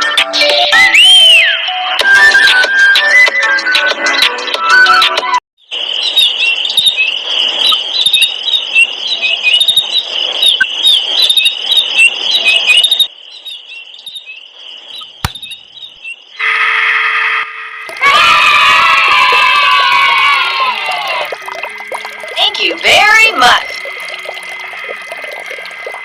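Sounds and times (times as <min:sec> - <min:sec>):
chorus of high-pitched chirps: 0:05.7 - 0:16.4
sharp click: 0:15.0 - 0:15.8.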